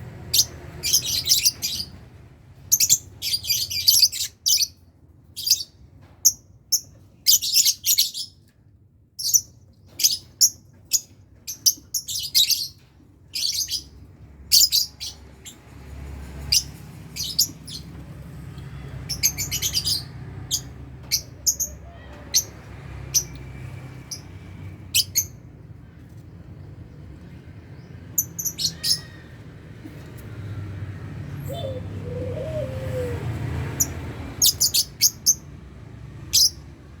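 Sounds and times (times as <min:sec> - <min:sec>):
lovebirds chirping: 0:19.0 - 0:23.4, 0:27.6 - 0:29.2, 0:31.3 - 0:35.4.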